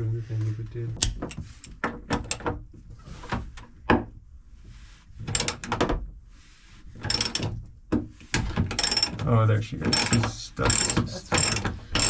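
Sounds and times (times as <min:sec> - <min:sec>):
ratchet clicking: 0:08.7 - 0:09.1, 0:09.9 - 0:12.0
hand tools scraping on metal: 0:09.9 - 0:12.0.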